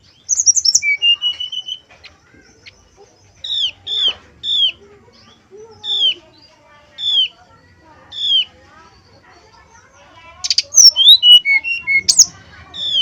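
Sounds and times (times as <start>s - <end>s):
bird song with whistled notes: 0.0s - 1.8s, 5.7s - 7.4s, 10.4s - 13.0s.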